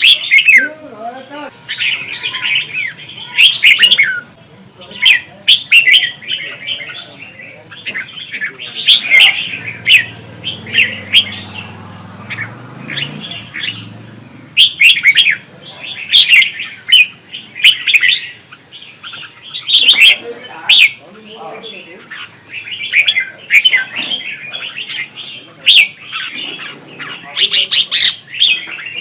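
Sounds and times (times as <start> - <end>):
birds warbled whistling: 0.0 - 29.0.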